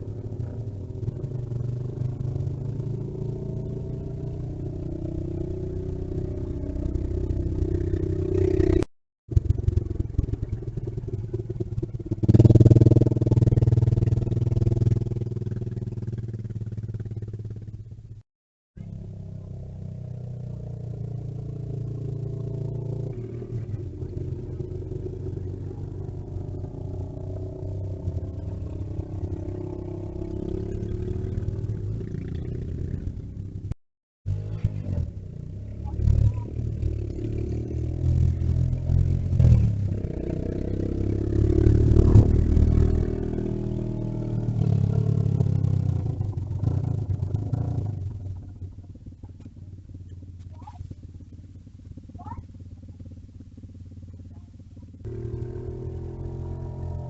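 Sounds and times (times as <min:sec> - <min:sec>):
vehicle engine running: 0:44.8 - 0:57.0.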